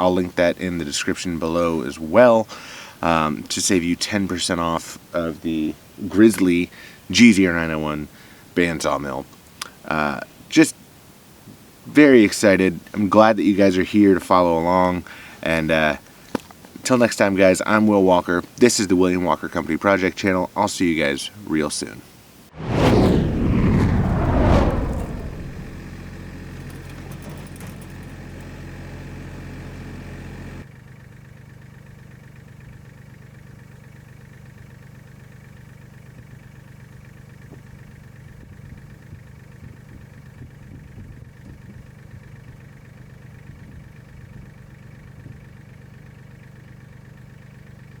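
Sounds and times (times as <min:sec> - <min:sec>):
engine idling: 0:26.4 - 0:48.0.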